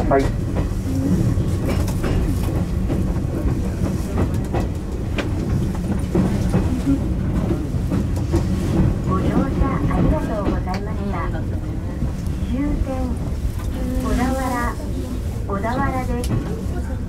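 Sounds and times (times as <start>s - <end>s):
train motor hum: 0.0s - 17.0s.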